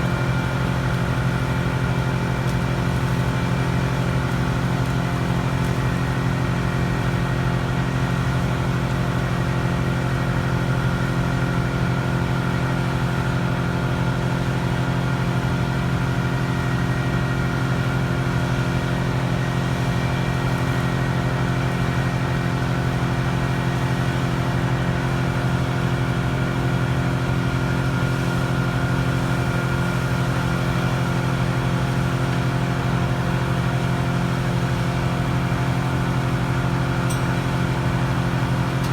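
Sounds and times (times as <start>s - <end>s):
crane engine running steadily: 0.0s - 38.9s.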